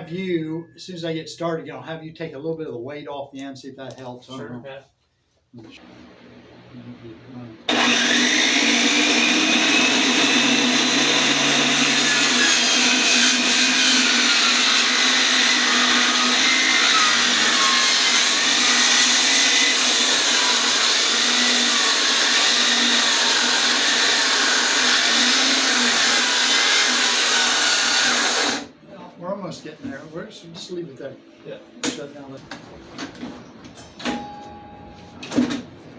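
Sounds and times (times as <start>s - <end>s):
power saw ripping through wood: 7.7s - 28.7s.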